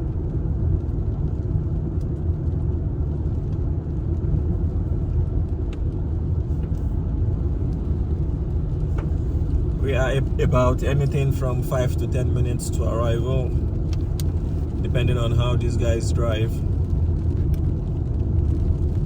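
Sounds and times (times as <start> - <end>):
car driving from inside cabin: 0.0 - 19.0
faint light ticks: 5.1 - 6.0, 6.6 - 6.9, 13.8 - 14.5.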